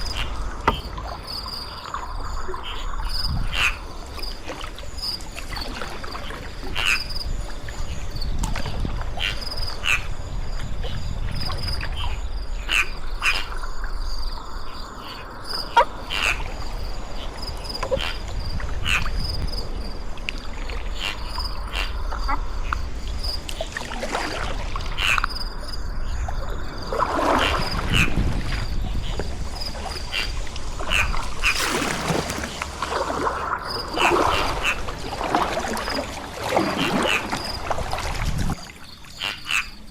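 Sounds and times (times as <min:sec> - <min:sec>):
kayak paddle water swishes: 0:00.0 - 0:12.0, 0:15.6 - 0:39.3
insects chorus: 0:00.0 - 0:39.9.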